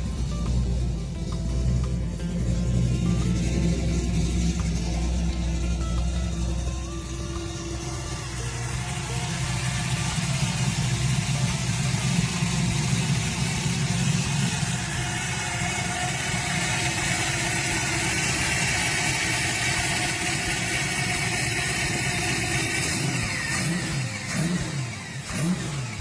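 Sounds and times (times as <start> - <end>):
car engine idling through exhaust: 0.0 - 26.0.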